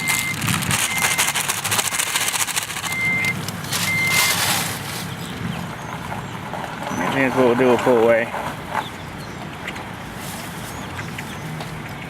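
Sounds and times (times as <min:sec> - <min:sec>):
reversing alarm beeping: 0:00.0 - 0:02.0, 0:02.8 - 0:04.4
vehicle engine running: 0:00.0 - 0:12.0.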